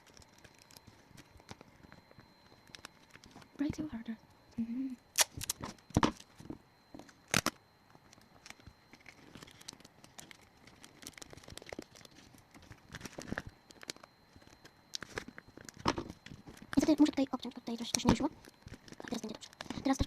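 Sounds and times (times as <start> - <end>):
paper crinkling: 0.0 - 3.5, 7.3 - 16.9
adhesive tape ripping: 5.2 - 5.6.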